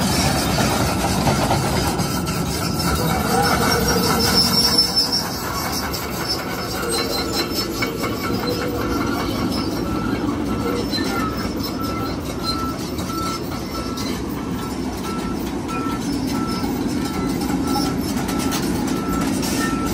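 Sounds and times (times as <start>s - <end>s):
heavy machinery rumbling: 0.0s - 19.9s
backup alarm beeping: 9.9s - 19.9s.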